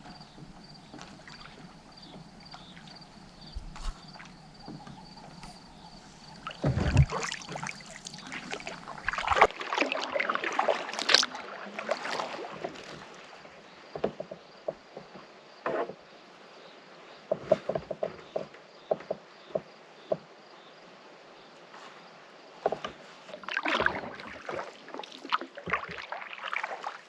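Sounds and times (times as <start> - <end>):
water dripping: 0.0 - 11.3
paddle splashing in water: 0.0 - 16.0, 22.6 - 27.0.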